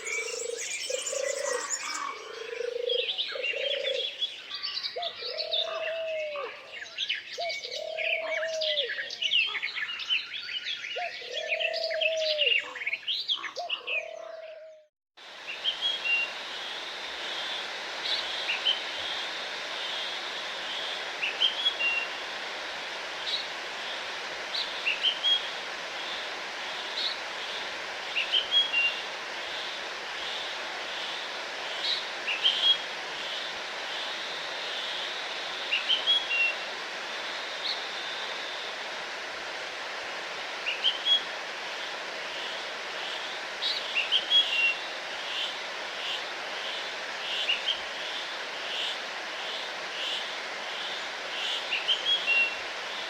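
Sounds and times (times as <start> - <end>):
small songbird chirping: 0.0 - 5.9.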